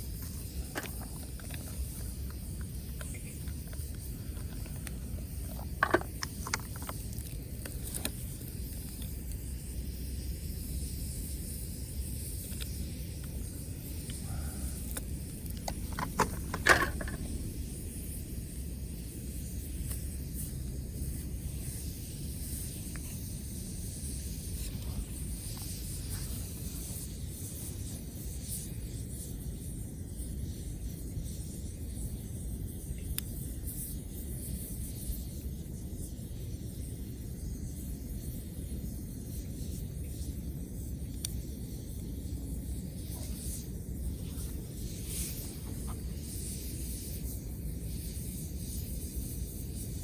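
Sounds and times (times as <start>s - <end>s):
wood fire crackling: 0.0s - 30.6s, 37.6s - 50.0s
fire hiss: 0.0s - 50.0s.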